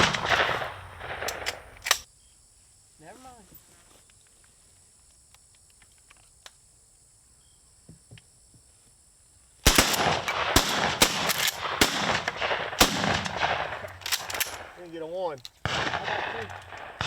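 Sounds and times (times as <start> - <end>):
shotgun blasts: 0.0 - 2.0, 9.7 - 14.9, 15.6 - 17.0.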